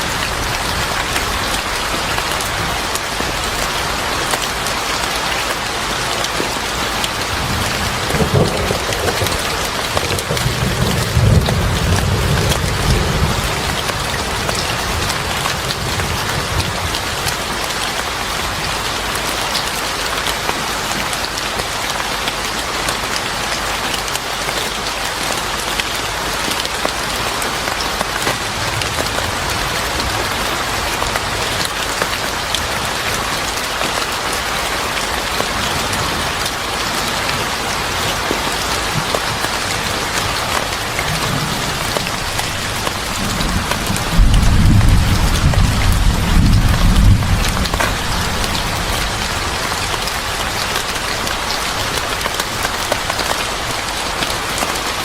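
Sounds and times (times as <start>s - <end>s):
steady rain on hard surfaces: 0.0s - 55.0s.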